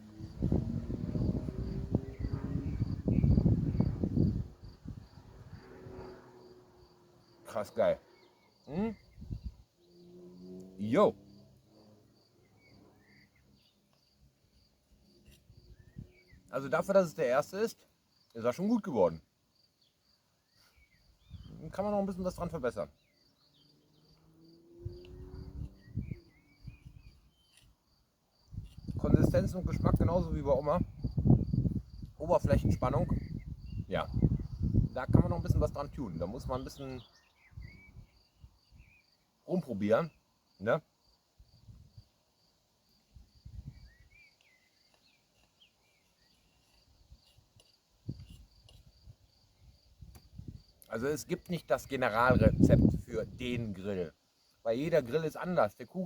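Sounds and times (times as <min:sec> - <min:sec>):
crickets chirping: 0:00.0 - 0:56.0
bird chirps: 0:12.4 - 0:16.6, 0:19.8 - 0:21.7, 0:22.9 - 0:27.8, 0:36.1 - 0:39.3, 0:43.6 - 0:48.7.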